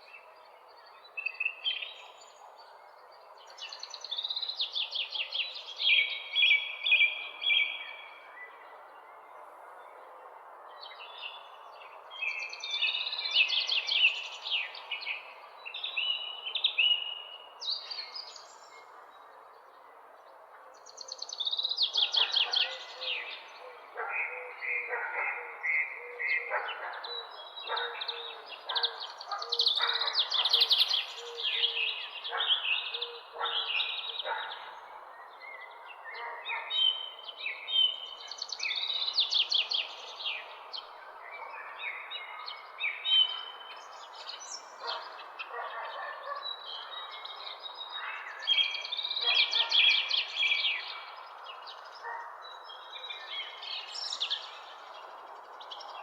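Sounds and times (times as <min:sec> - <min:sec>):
small birds chirping and trilling: 0:20.8 - 0:56.0.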